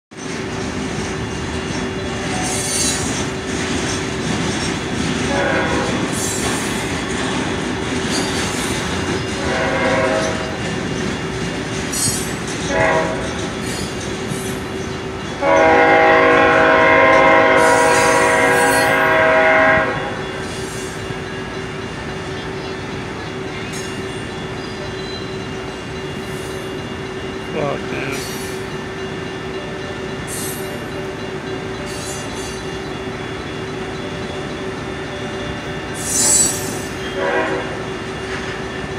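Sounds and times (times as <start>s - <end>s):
train wheels clattering and squealing: 0.1s - 38.9s
train horn: 5.3s - 6.4s, 9.4s - 10.6s, 12.7s - 13.4s, 15.4s - 20.6s, 36.1s - 38.0s.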